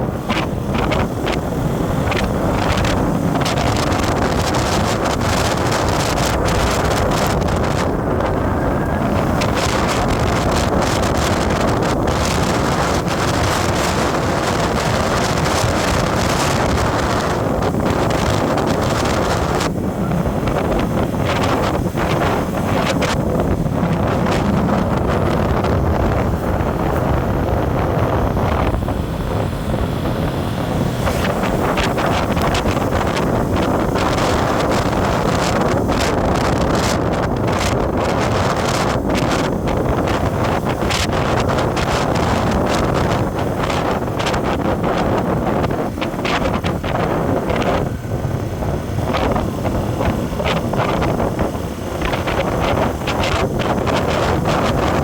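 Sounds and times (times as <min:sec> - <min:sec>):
road and engine noise: 0:00.0 - 0:55.0
wind buffeting microphone: 0:00.0 - 0:55.0.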